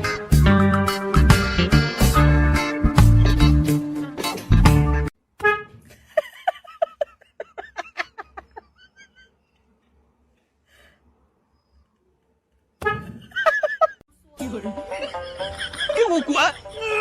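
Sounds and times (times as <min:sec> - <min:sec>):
person giggling: 0:05.9 - 0:09.4.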